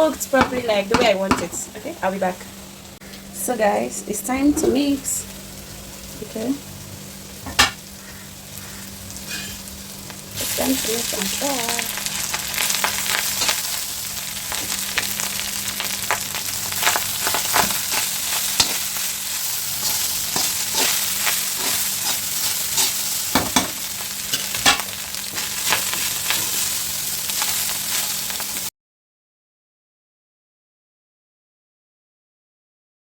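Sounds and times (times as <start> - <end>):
food sizzling in a pan: 0.0 - 28.7
spatula scraping a pan: 8.0 - 9.7, 12.1 - 13.8, 16.7 - 28.6.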